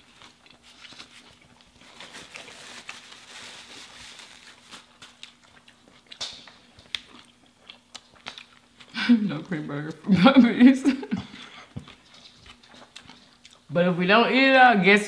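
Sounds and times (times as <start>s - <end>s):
chewing food: 0.0s - 3.1s, 4.5s - 10.1s, 11.1s - 13.7s.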